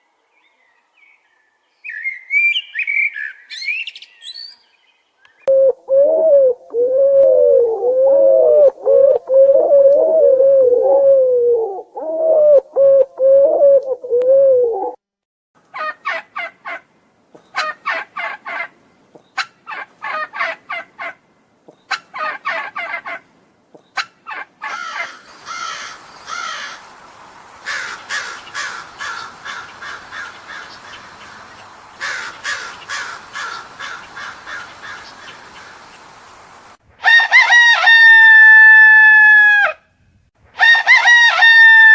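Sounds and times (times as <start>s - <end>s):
large bird harsh calls: 24.0s - 26.8s, 27.6s - 36.0s.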